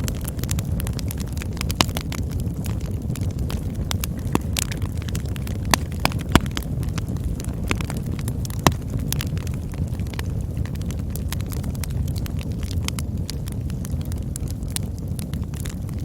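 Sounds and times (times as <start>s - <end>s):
campfire flames rumbling: 0.0s - 16.0s
fire crackling and popping: 0.0s - 16.0s.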